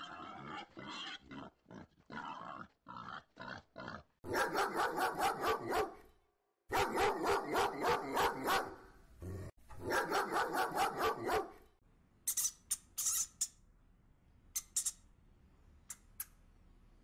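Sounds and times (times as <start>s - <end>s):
dog barking rapidly: 4.2s - 6.0s, 6.7s - 8.9s, 9.8s - 11.6s.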